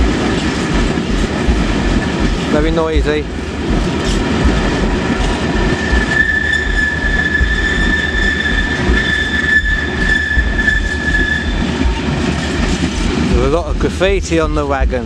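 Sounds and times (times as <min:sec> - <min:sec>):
train wheels rumbling and clattering: 0:00.0 - 0:15.0
high-pitched wheel squeal: 0:05.7 - 0:12.6.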